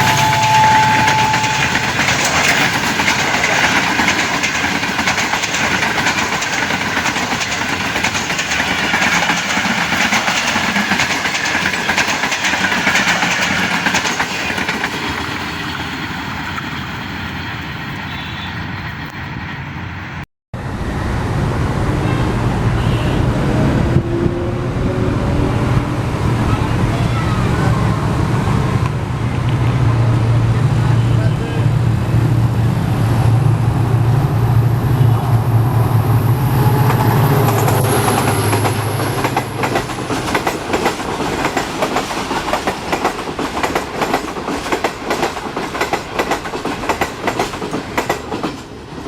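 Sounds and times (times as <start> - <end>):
wheels clattering over rail joints: 0.0 - 15.8
diesel train passing: 0.0 - 49.0.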